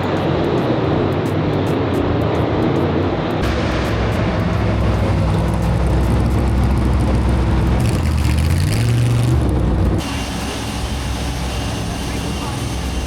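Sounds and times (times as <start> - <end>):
car engine running: 3.1 - 13.0.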